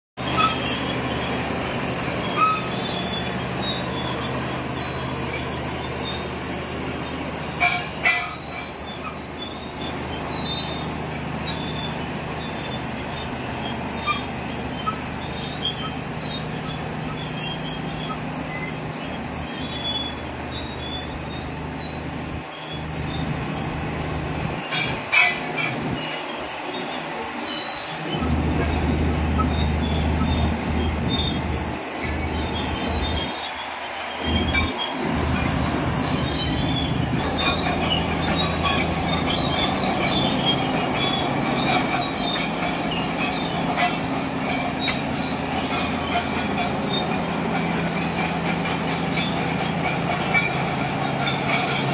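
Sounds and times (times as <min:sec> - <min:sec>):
high steady whine: 0:00.2 - 0:46.1
bulldozer diesel engine drone: 0:00.2 - 0:51.9
sharp metallic clanks: 0:24.5 - 0:26.2.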